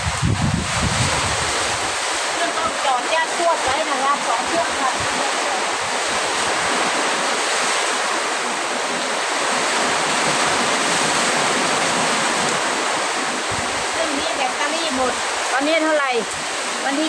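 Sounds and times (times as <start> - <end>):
heavy rain pouring: 0.0 - 17.0
wind: 0.0 - 17.0.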